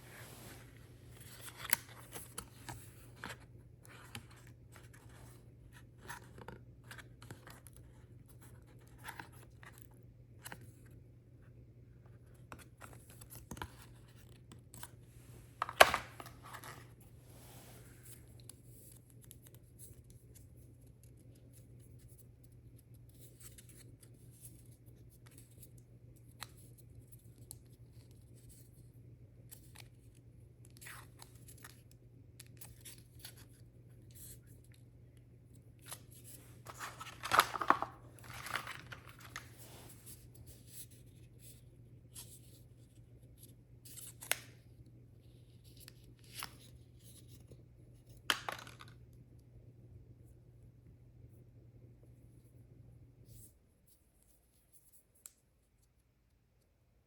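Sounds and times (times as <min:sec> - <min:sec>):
cardboard and plastic clicks: 0:15.6 - 0:16.8, 0:36.7 - 0:39.5, 0:48.3 - 0:49.0
packaging tearing and crinkling: 0:36.7 - 0:39.5.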